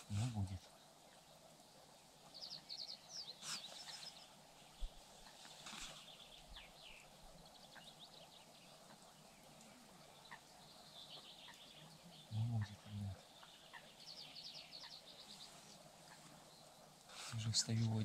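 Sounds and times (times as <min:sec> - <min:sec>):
high bird chirping: 0:06.0 - 0:16.8.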